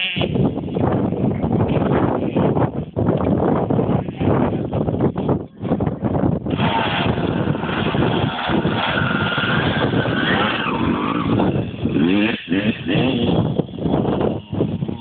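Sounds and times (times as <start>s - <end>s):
motocross bike engines revving: 6.5s - 15.0s.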